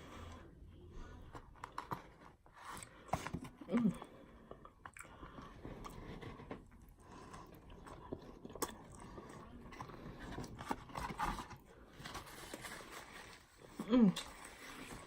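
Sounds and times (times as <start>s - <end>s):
person chewing food: 1.6s - 10.7s.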